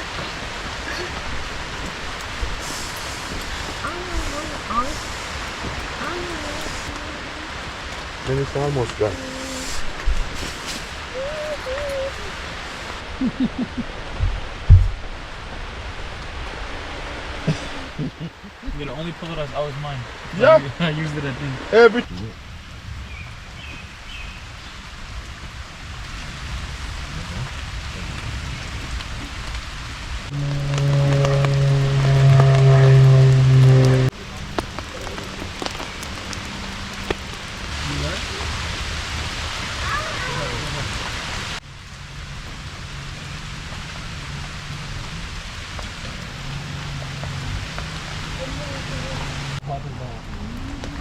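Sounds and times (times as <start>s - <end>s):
heavy rain pouring: 0.0s - 51.0s
low hum: 25.8s - 39.7s.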